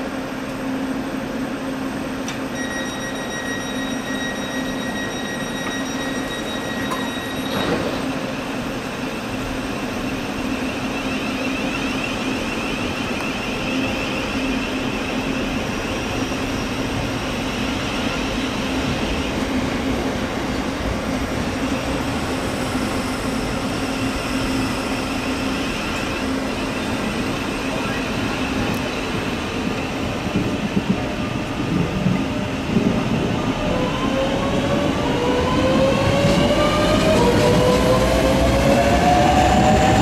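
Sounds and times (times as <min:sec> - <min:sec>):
train wheels rumbling on rail: 0:00.0 - 0:40.0
high steady tone: 0:02.5 - 0:07.7.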